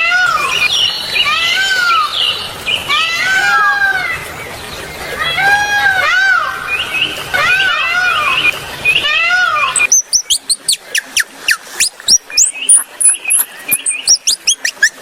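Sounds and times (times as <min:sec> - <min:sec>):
small animal squealing: 0:09.1 - 0:15.0
small animal chirping: 0:09.7 - 0:15.0.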